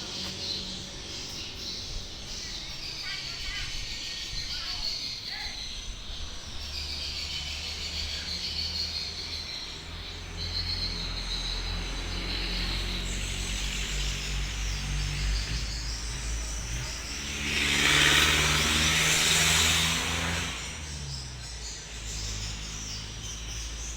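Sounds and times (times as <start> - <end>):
vehicle engine humming: 0.0 - 4.0, 5.4 - 23.9
insects chirping: 0.0 - 23.9
loud rushing noise: 13.6 - 21.0.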